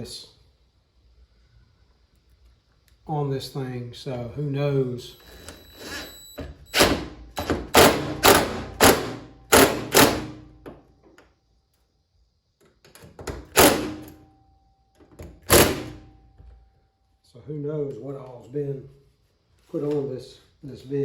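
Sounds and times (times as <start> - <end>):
knocks on sheet-metal door: 6.8 - 10.8, 15.4 - 16.0.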